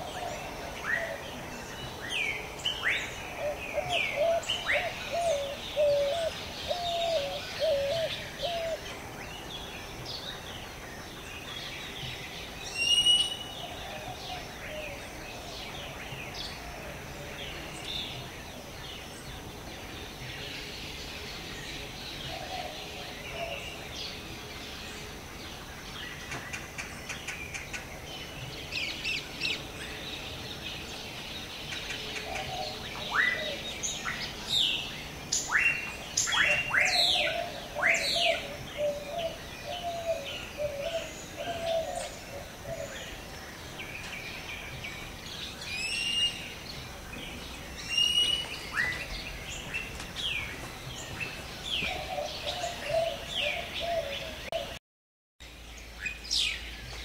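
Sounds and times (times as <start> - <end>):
steady background hiss: 0.0 - 54.7, 55.4 - 57.0
swooping whistled bird calls: 12.6 - 14.8, 31.8 - 43.2, 45.5 - 46.6, 47.8 - 50.5
lower warbling bird call: 12.7 - 15.0.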